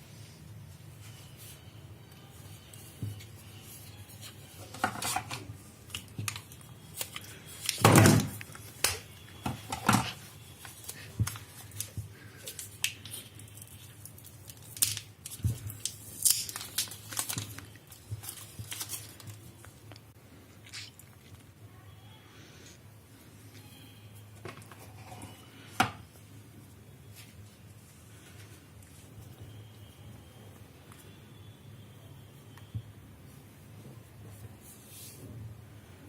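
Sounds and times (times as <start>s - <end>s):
packaging rustling: 3.8s - 20.1s.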